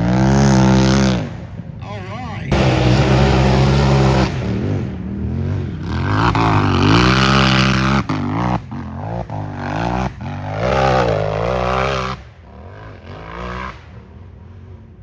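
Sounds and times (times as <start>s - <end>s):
engine revving hard: 2.5s - 12.2s.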